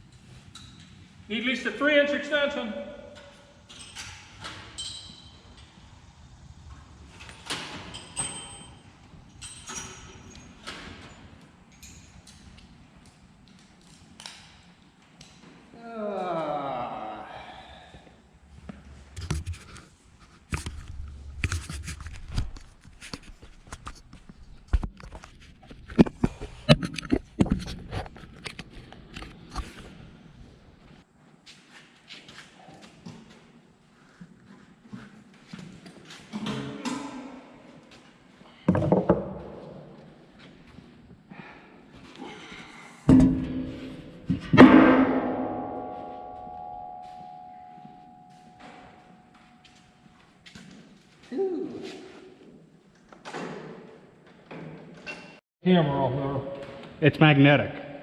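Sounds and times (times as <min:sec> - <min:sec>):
metal tools clinking and scraping: 0:03.2 - 0:05.4, 0:07.8 - 0:12.4
metal striking metal with ringing: 0:43.1 - 0:49.8.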